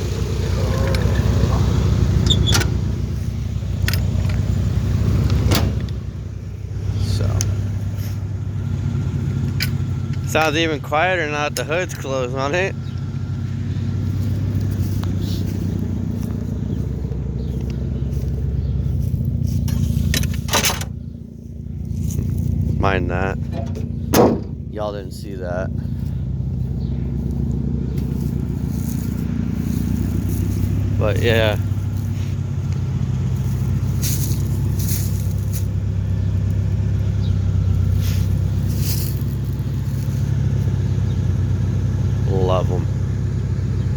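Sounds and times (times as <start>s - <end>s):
car engine idling: 0.0s - 43.9s.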